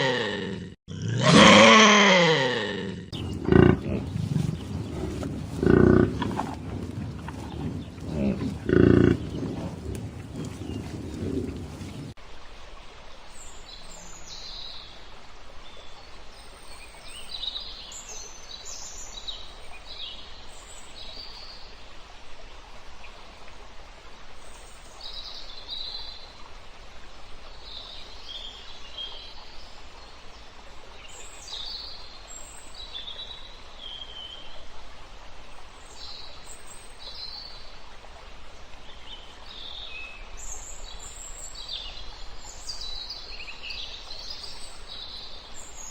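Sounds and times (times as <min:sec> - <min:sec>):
birds chirping: 0:00.0 - 0:12.2
outdoor background hiss: 0:02.7 - 0:45.9.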